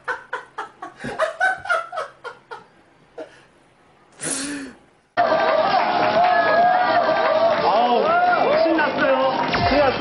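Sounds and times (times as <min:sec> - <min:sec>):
short breathy burst: 0:04.2 - 0:04.9.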